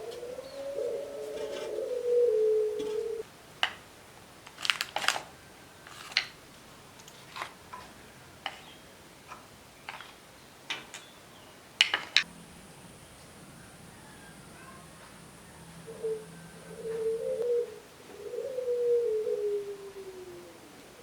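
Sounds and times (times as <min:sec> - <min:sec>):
cooing tone: 0:00.0 - 0:03.2, 0:13.9 - 0:21.0.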